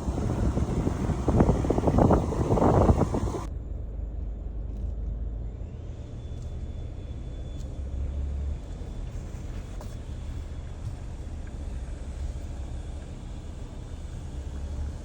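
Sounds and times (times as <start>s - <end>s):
loud rushing noise: 0.0s - 3.5s
car road rumble: 0.0s - 5.6s.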